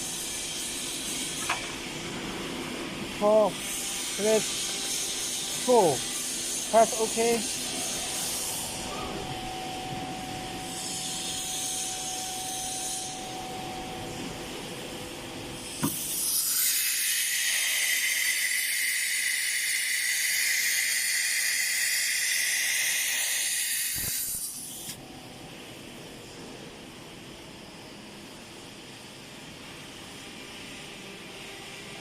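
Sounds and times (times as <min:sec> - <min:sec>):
machine hum: 0:01.6 - 0:18.0
compressed air hiss: 0:15.7 - 0:25.0.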